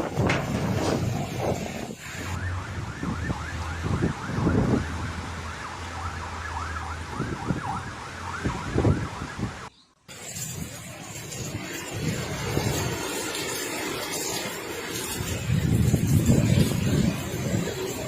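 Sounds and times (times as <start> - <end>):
wind buffeting microphone: 0.0 - 5.6, 6.6 - 18.0
siren yelping: 2.2 - 9.7.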